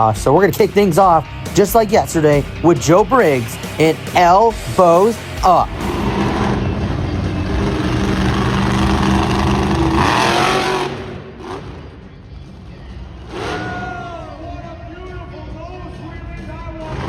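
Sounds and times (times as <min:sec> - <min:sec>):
truck engine revving: 0:03.3 - 0:14.9, 0:16.3 - 0:17.0.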